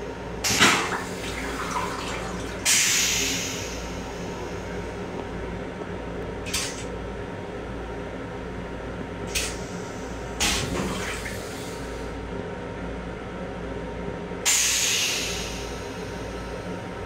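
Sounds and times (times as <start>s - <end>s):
railcar low rumble and hum: 0.0s - 17.0s.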